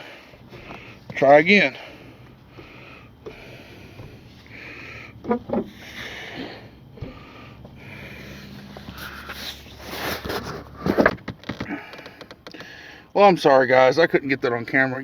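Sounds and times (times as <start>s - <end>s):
heavy breathing: 0.0s - 10.8s, 11.6s - 13.2s
car seat clunking: 2.2s - 4.4s, 5.1s - 5.8s, 6.9s - 7.9s, 10.6s - 12.8s.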